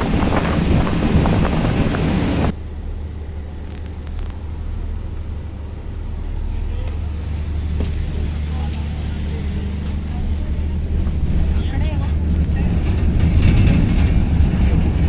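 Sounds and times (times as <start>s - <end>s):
rushing water: 0.0s - 2.5s
engine low hum: 0.0s - 15.0s
wind: 0.0s - 15.0s.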